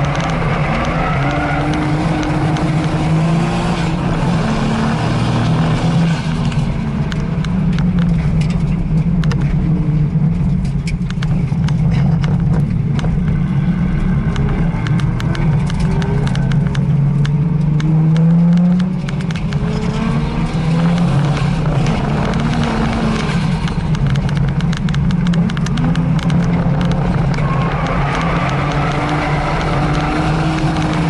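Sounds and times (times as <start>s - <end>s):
car engine running hard: 0.0s - 31.0s
sharp clicks: 14.3s - 20.0s, 20.8s - 31.0s.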